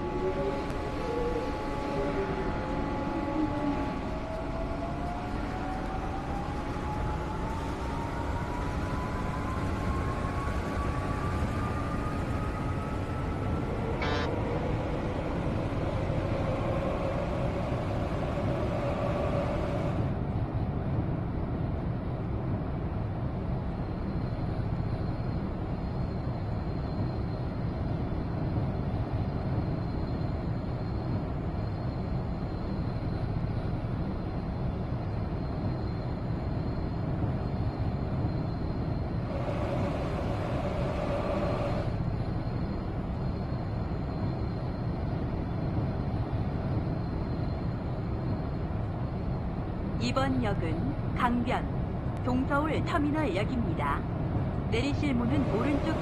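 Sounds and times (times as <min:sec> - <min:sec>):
subway wheels rumbling: 0:00.0 - 0:56.0
motor whine rising in pitch: 0:14.0 - 0:14.3.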